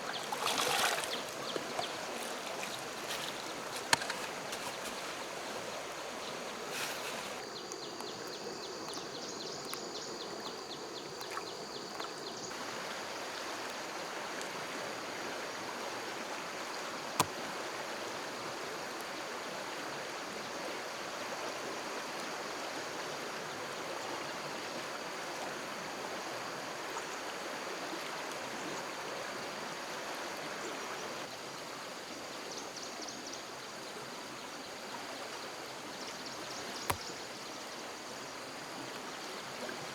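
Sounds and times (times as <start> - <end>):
stream water rushing: 0.0 - 7.5, 11.0 - 31.3.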